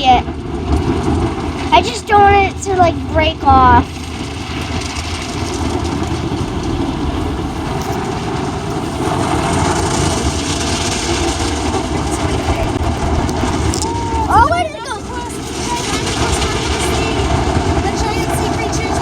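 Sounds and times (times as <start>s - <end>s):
low rumble: 0.0s - 19.0s
water spray and scrubbing: 3.8s - 13.8s.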